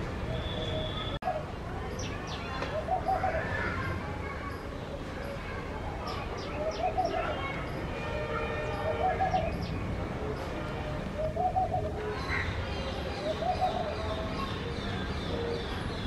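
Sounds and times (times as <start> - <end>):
faint high bird chirps: 0.3 - 7.8.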